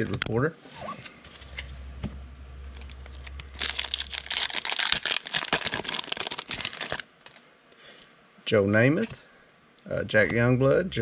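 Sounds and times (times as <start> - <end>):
foil wrapper tearing and crinkling: 2.8 - 7.4.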